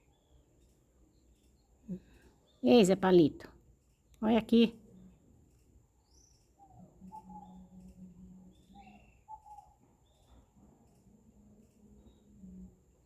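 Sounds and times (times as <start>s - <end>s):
faint low steady hum: 0.0s - 13.0s
distant birds chirping: 4.2s - 13.0s.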